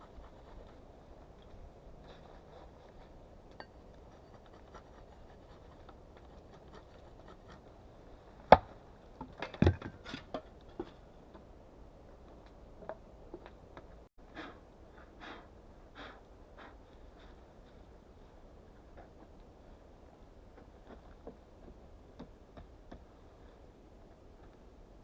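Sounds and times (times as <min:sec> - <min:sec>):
clatter of small knocks: 0:09.2 - 0:11.0
wood scraping and rustling: 0:09.2 - 0:11.1.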